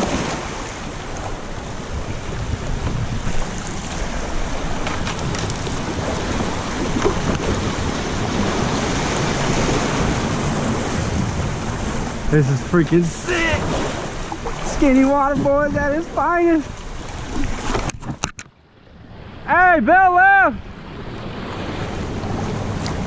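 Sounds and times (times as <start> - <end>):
wind buffeting microphone: 0.0 - 18.3
river rapids rushing and splashing: 3.4 - 17.6.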